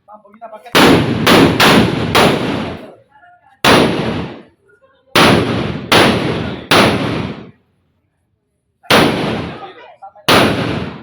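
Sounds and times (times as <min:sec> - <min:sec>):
firecrackers banging: 0:00.8 - 0:03.0, 0:03.6 - 0:04.6, 0:05.2 - 0:07.6, 0:08.9 - 0:11.0.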